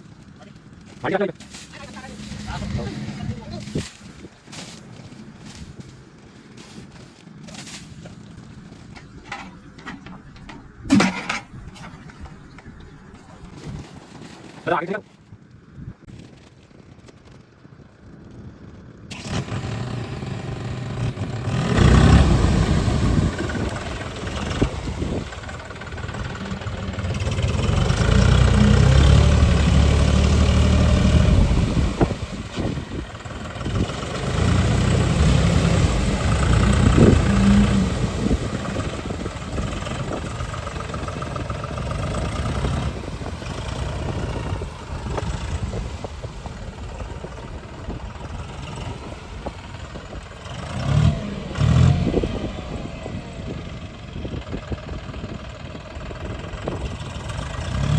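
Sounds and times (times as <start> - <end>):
tractor engine revving: 1.5 - 4.7, 8.5 - 14.0, 19.0 - 57.9
sharp metal clanks: 9.0 - 12.2.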